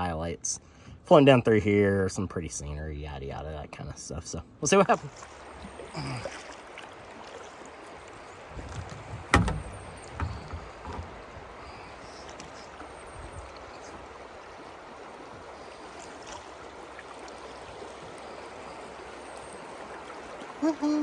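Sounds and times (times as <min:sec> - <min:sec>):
river water running: 0:04.3 - 0:21.0
knocks on kayak: 0:08.6 - 0:11.3.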